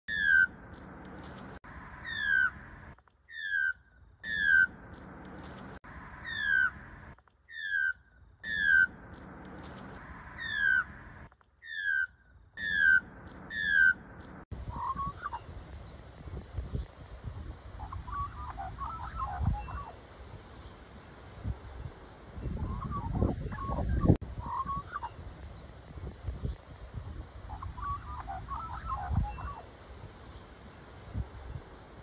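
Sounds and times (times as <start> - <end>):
lower wavering bird call: 17.8 - 20.0, 22.6 - 25.2, 27.5 - 29.7.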